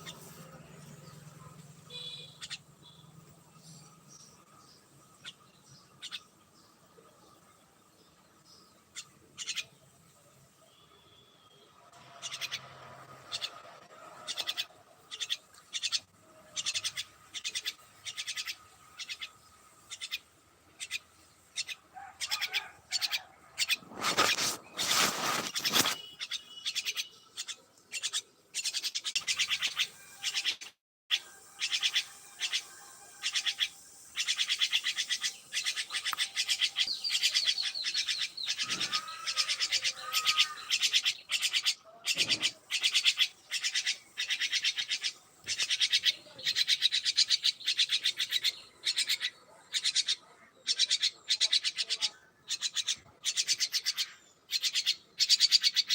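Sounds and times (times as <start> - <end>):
birds chirping: 0.0 - 55.9
rustling noise: 23.7 - 26.2.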